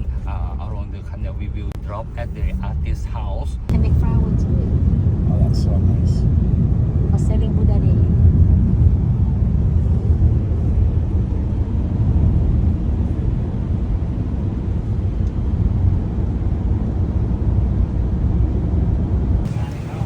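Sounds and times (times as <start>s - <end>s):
boat engine rumbling: 0.0s - 20.0s.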